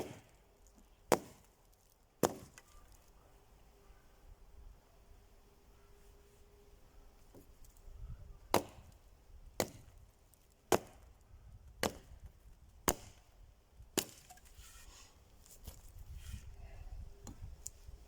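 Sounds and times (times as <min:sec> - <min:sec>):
axe chopping wood: 0:00.0 - 0:00.4, 0:01.1 - 0:01.5, 0:02.2 - 0:02.7, 0:08.5 - 0:09.0, 0:09.6 - 0:10.0, 0:10.7 - 0:11.1, 0:11.8 - 0:12.2, 0:12.8 - 0:13.2, 0:14.0 - 0:14.4.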